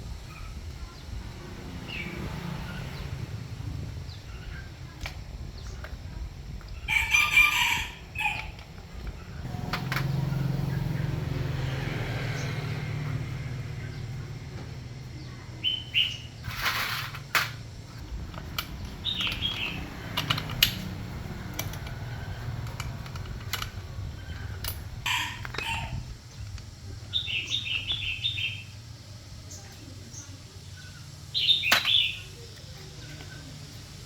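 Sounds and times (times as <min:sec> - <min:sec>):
small birds chirping: 0:00.0 - 0:16.8, 0:17.6 - 0:34.0
sharp clicks and knocks: 0:16.5 - 0:25.6.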